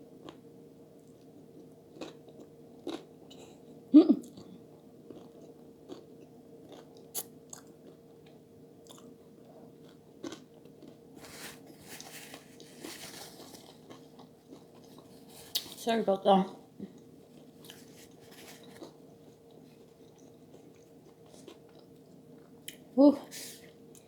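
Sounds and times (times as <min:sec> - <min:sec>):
close chewing with mouth clicks: 0:01.0 - 0:03.6, 0:04.2 - 0:15.8, 0:16.9 - 0:22.8.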